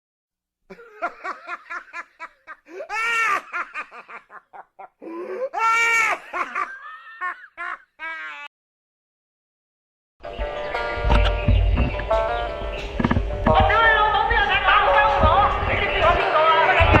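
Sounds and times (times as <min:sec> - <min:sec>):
person laughing hard: 0:00.7 - 0:08.5.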